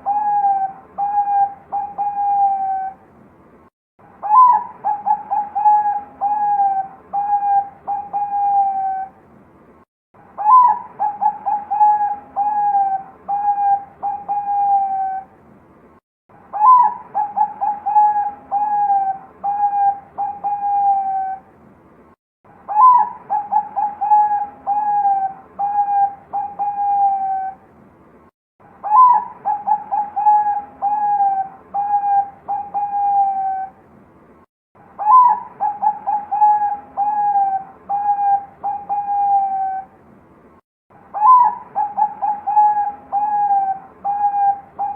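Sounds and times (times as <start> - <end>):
dove cooing: 0.0 - 3.0, 4.2 - 9.2, 10.4 - 15.3, 16.5 - 21.4, 22.7 - 27.6, 28.8 - 33.8, 35.0 - 39.9, 41.2 - 44.9.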